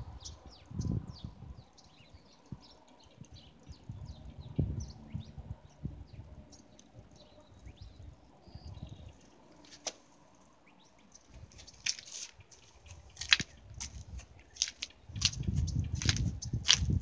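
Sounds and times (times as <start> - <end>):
footsteps crunching in snow: 11.4 - 17.0.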